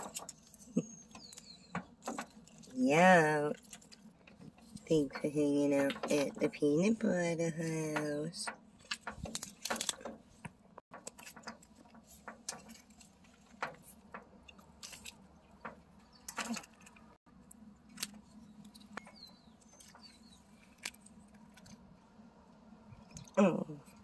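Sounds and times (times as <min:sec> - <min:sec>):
small clicks and rustles: 0:00.0 - 0:06.6, 0:07.9 - 0:22.0.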